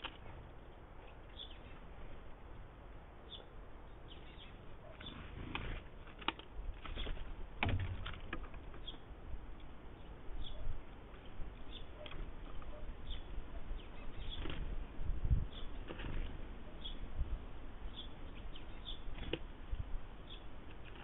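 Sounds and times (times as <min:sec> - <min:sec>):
sharp clicks and knocks: 0:05.6 - 0:09.0.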